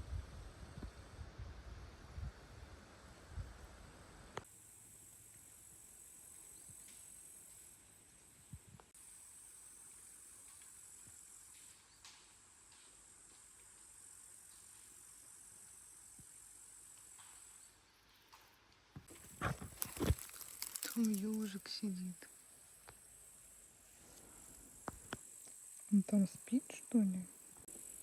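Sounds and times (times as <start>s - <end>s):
crickets chirring: 2.3s - 18.3s, 19.1s - 28.0s
soft clicks and rustles: 18.3s - 21.7s.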